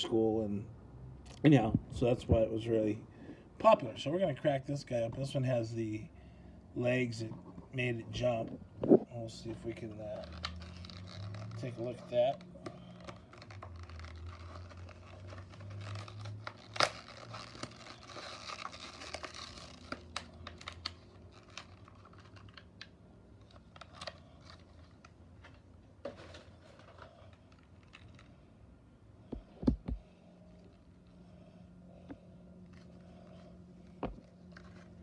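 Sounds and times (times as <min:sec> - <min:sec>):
plastic and card crinkling and tearing: 0:07.0 - 0:28.8, 0:32.0 - 0:35.0
packaging clicks and snaps: 0:10.1 - 0:25.6.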